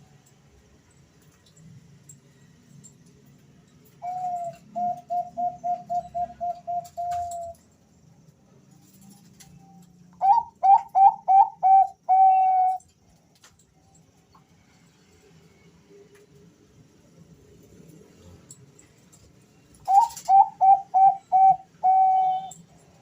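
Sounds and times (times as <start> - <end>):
doves cooing: 4.0 - 7.6, 10.2 - 12.8, 19.8 - 22.6.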